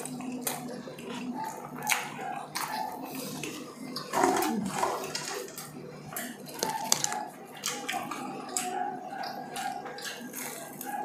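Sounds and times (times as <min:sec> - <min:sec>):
chewing and mouth smacks: 0:00.0 - 0:11.0.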